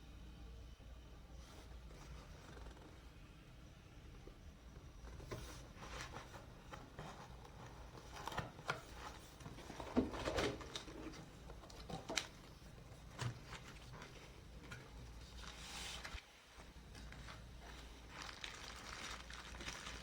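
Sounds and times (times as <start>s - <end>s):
packaging sliding rustle: 5.2s - 16.2s, 17.0s - 20.0s
packaging crinkling: 7.0s - 16.2s, 17.0s - 20.0s.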